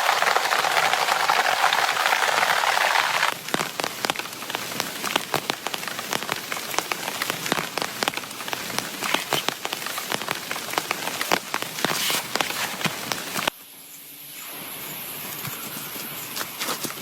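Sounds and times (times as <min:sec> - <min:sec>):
heavy rain falling: 0:00.0 - 0:13.5.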